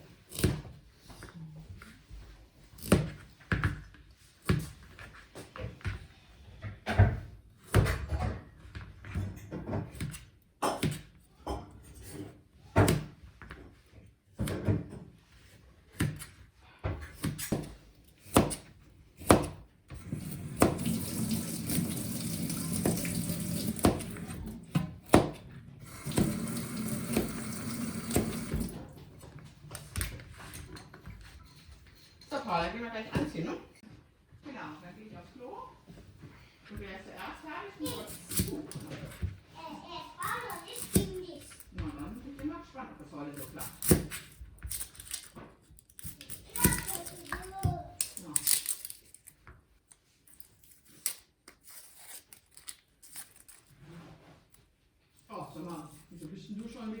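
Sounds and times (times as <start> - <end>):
kitchen knocks and clatter: 6.6 - 15.2, 16.8 - 33.6
tap running into sink: 20.1 - 29.1.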